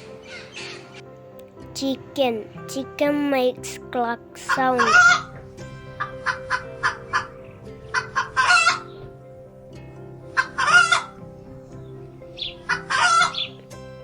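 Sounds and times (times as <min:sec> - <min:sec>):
chicken clucking: 0:06.0 - 0:09.1, 0:10.3 - 0:11.2, 0:11.8 - 0:13.6.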